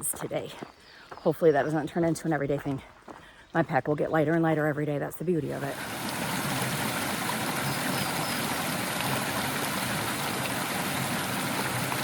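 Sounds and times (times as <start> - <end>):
water rushing down stream: 5.6 - 12.0.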